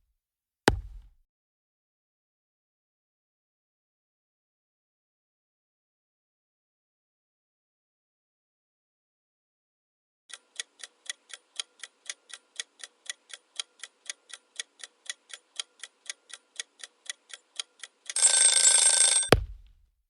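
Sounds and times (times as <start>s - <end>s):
clock ticking: 10.3s - 18.4s
alarm bell ringing: 18.2s - 19.4s.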